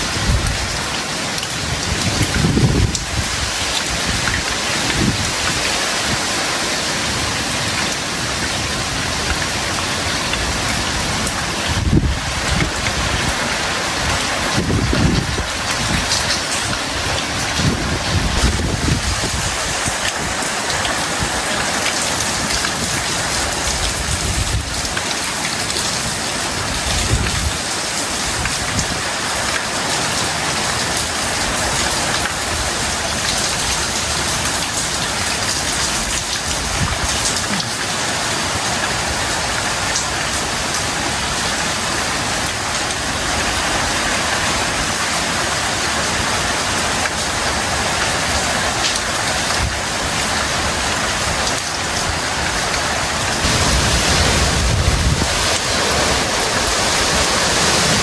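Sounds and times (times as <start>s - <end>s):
wind gusts buffeting microphone: 0.0s - 0.9s, 1.5s - 6.5s, 8.3s - 25.0s, 26.1s - 29.1s, 47.7s - 58.0s
heavy rain falling: 0.0s - 58.0s.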